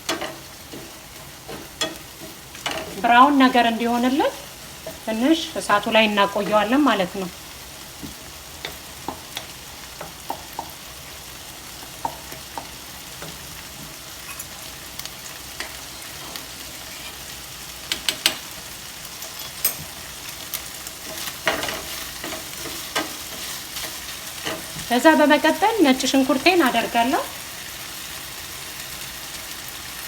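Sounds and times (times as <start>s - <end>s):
chicken sizzling in a pan: 0.0s - 30.0s.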